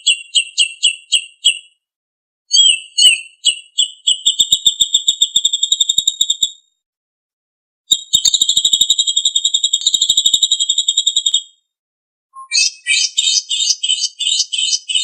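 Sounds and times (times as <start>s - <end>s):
songbird trilling: 12.4s - 15.0s.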